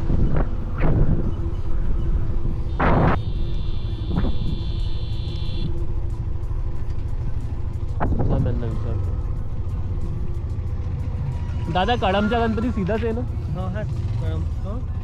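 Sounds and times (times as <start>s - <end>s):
wind noise: 0.0s - 3.3s, 4.0s - 4.7s
vehicle horn: 2.6s - 5.8s.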